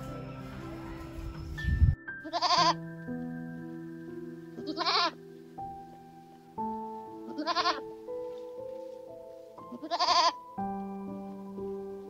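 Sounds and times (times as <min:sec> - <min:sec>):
soft background music: 0:00.0 - 0:12.0
goat bleating: 0:02.2 - 0:02.8, 0:04.6 - 0:05.2, 0:07.3 - 0:07.9, 0:09.7 - 0:10.4.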